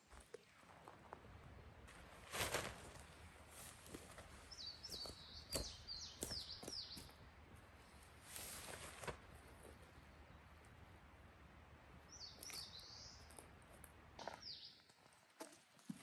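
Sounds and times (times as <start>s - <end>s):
outdoor ambience: 0.0s - 16.0s
rustle: 0.0s - 16.0s
small bird singing: 4.5s - 7.2s, 12.1s - 13.4s, 14.2s - 14.9s.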